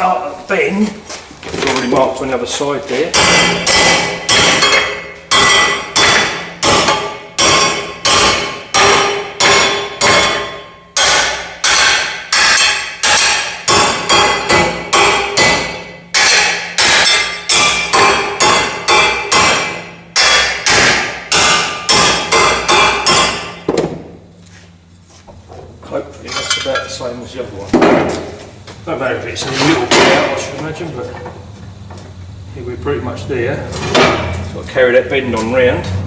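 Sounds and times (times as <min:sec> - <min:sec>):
hammer striking metal bar: 0:03.1 - 0:23.9, 0:29.9 - 0:30.4.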